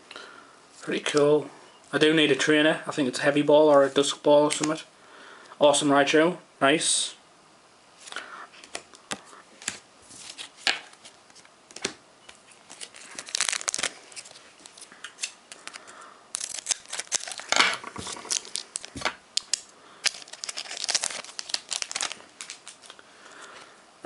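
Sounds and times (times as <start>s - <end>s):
foil wrapper tearing and crinkling: 12.6s - 23.0s.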